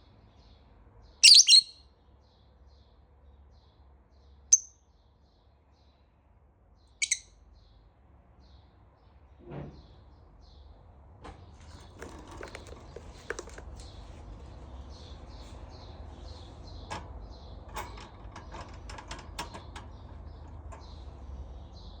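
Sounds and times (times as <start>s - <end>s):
lovebirds chirping: 1.2s - 1.8s, 4.5s - 4.7s, 7.0s - 7.2s
sharp loud bird call: 1.2s - 1.8s.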